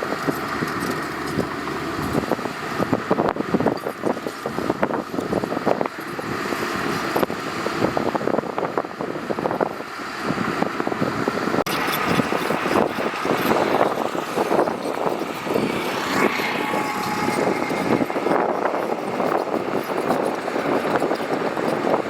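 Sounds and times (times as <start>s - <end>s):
gravel crunching and knocking: 0.0s - 9.7s, 11.7s - 22.0s
diesel engine running: 0.0s - 22.0s.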